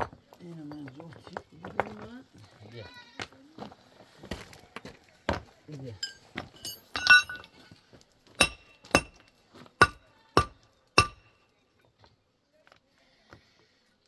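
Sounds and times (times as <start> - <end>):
jangle: 6.0 - 7.5
ringing metallic clinks: 6.0 - 7.5, 8.4 - 9.2, 9.8 - 11.3.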